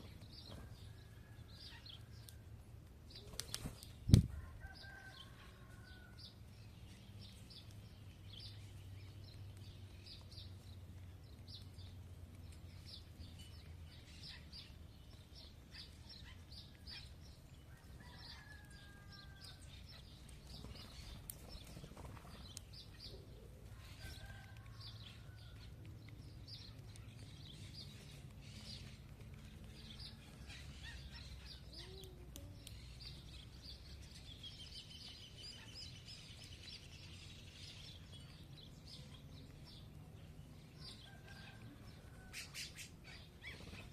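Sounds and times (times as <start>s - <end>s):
small birds chirping: 0.0s - 43.9s.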